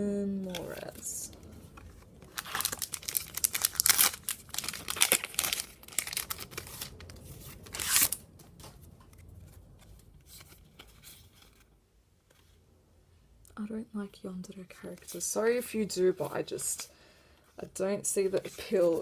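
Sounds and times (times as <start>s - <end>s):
foil pack tearing and crinkling: 2.3s - 8.2s.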